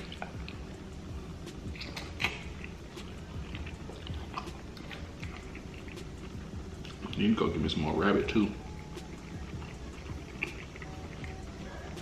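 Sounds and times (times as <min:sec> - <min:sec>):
person chewing food: 0:00.0 - 0:07.3, 0:08.6 - 0:12.0
low steady hum: 0:00.0 - 0:12.0
wet mouth clicks: 0:01.5 - 0:07.2, 0:09.0 - 0:12.0.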